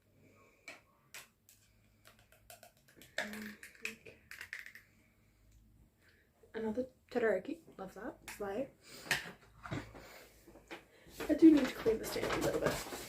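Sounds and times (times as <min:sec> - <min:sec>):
plastic clicks and taps: 0:00.6 - 0:04.8.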